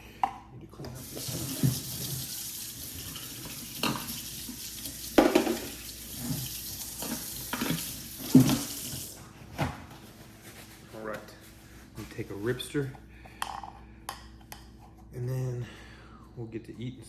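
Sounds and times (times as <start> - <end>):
tap running into sink: 0.9 - 9.2
dishes clanking against sink: 3.0 - 4.3, 5.1 - 9.0.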